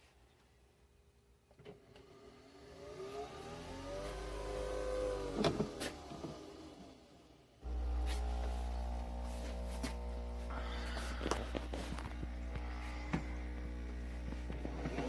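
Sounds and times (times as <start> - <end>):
small electric motor spinning: 2.7 - 6.7, 7.6 - 15.0.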